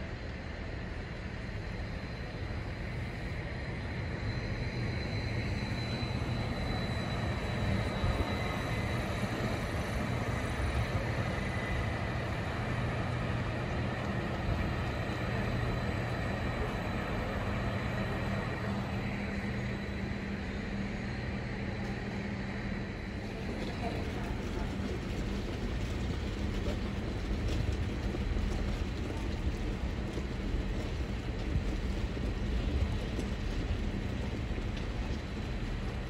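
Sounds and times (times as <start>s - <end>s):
faint high whine: 0.0s - 36.0s
train running hum: 0.0s - 36.0s.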